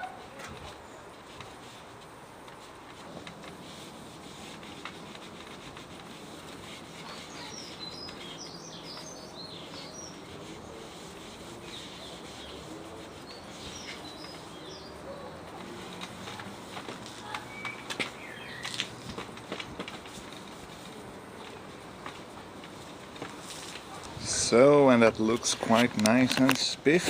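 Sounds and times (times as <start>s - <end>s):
rubbing on wood: 0.0s - 27.0s
small birds chirping: 6.2s - 19.4s.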